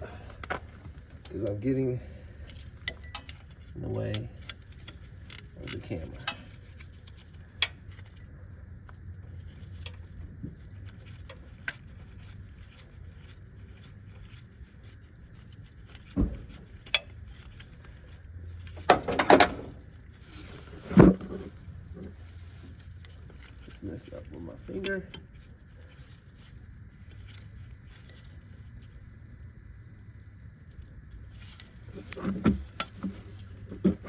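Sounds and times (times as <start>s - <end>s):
metal tools clinking on engine parts: 0.0s - 6.8s.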